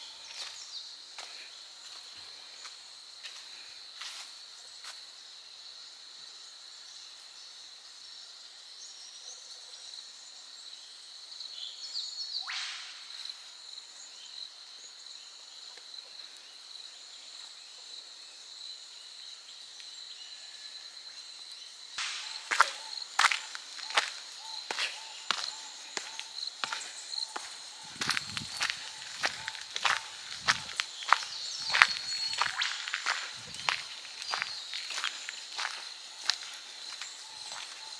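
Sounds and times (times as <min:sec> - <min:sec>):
footsteps: 0:22.0 - 0:37.9
bird call: 0:22.2 - 0:35.8.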